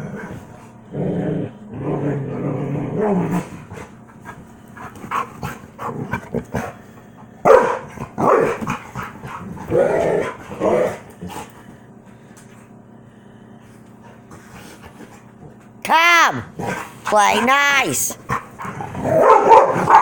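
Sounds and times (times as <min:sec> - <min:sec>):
dog growling: 0:00.0 - 0:03.9, 0:04.8 - 0:06.8, 0:08.0 - 0:11.5, 0:18.3 - 0:20.0
dogs barking loudly: 0:07.4 - 0:11.1, 0:18.2 - 0:20.0
dogs yipping: 0:19.2 - 0:20.0.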